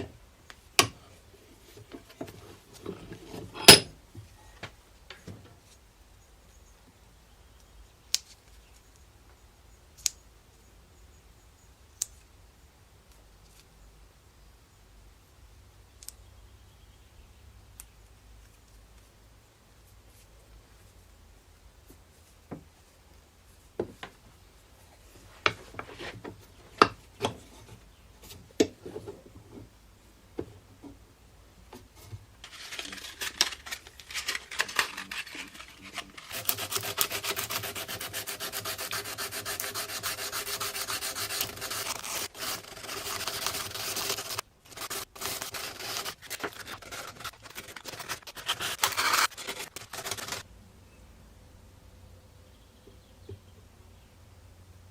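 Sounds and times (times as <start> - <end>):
scrapes and knocks: 25.3 - 29.8.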